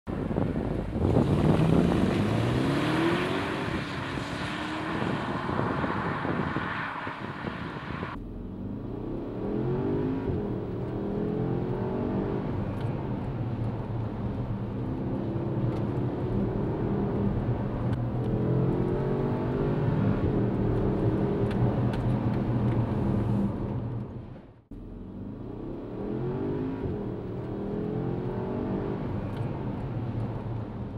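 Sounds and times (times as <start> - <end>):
tyre and wind noise: 0.1 - 8.2
car engine accelerating: 0.1 - 30.9.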